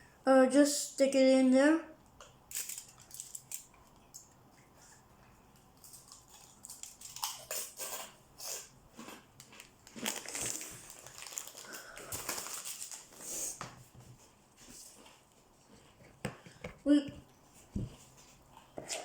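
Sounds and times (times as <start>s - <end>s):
hands and utensils working dough: 13.6s - 19.0s.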